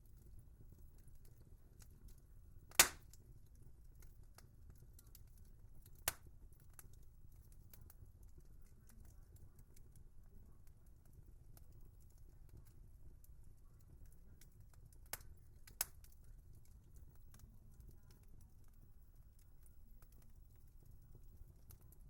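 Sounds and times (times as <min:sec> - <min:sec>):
wood fire crackling: 0:00.0 - 0:22.0
fire sharp pops: 0:02.7 - 0:03.2, 0:05.0 - 0:06.9, 0:15.1 - 0:16.1.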